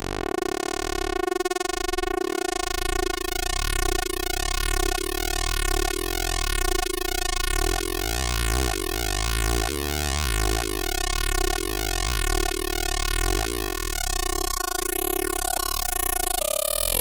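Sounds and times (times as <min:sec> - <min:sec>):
buzzing synthesizer tone: 0:00.0 - 0:17.0.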